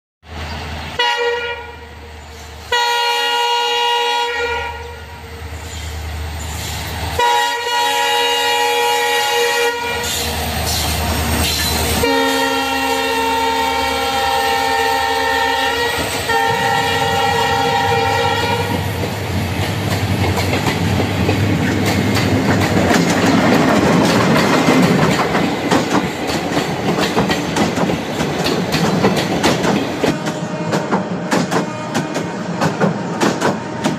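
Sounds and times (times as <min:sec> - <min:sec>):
train horn blasts: 0:01.0 - 0:02.0, 0:02.7 - 0:05.5, 0:07.2 - 0:10.3, 0:11.9 - 0:18.9, 0:30.0 - 0:32.6, 0:33.5 - 0:33.9
train wheels clattering over rails: 0:16.0 - 0:33.9.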